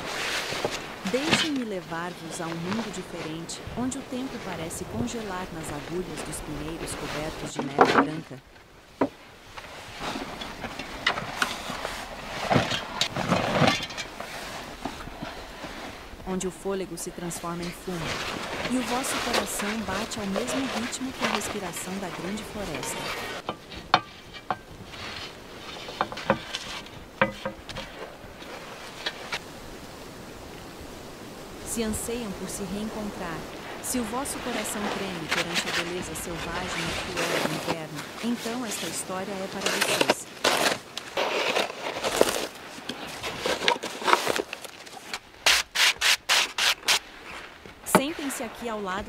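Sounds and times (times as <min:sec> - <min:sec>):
faint steady hiss: 0:00.0 - 0:49.0
faint rustling: 0:17.1 - 0:30.0.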